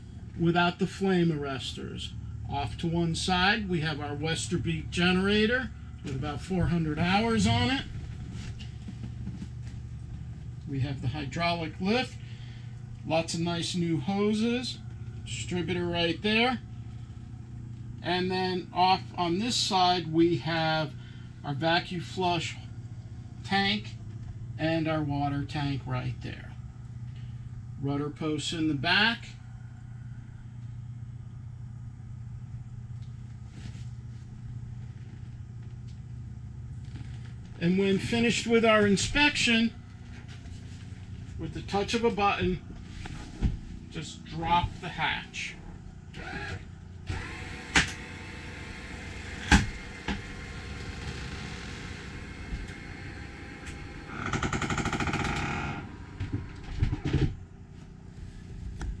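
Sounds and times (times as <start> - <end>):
low mechanical motor hum: 0.0 - 59.0
faint rustle: 7.2 - 10.7, 33.1 - 37.6, 57.7 - 59.0
rapid rattle: 53.2 - 57.2.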